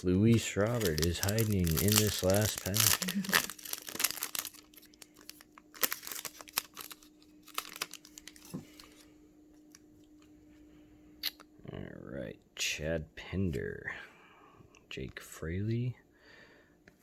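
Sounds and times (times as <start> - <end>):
wrapper tearing and crinkling: 0.0 - 9.0
faint steady hum: 0.0 - 17.0.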